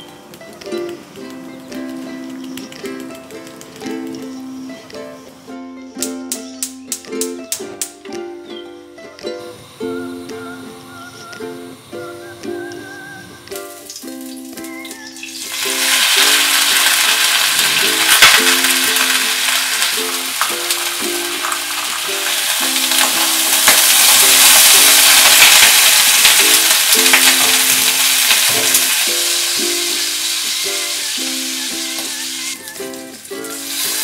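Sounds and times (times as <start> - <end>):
ukulele music: 0.0 - 34.0
cabbage sizzling in oil: 13.6 - 34.0.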